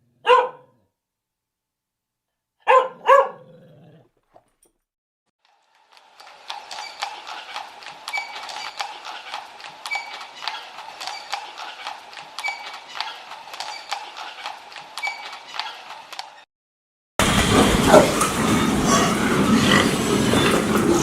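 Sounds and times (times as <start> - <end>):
hooves clip-clopping on hard surface: 5.4 - 16.3.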